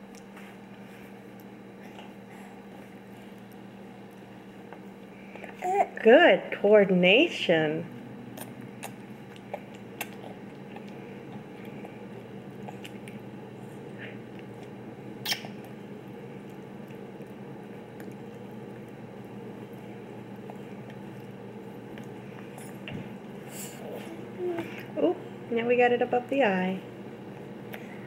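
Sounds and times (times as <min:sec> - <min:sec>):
low room hum: 0:00.0 - 0:28.0
baby eating clicks and smacks: 0:08.4 - 0:13.3, 0:14.3 - 0:19.0, 0:19.6 - 0:23.4.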